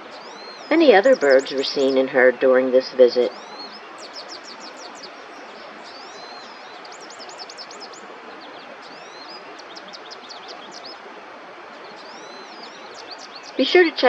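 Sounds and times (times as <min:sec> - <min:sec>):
songbirds singing: 0:00.0 - 0:14.0
steady rushing background noise: 0:00.0 - 0:14.0.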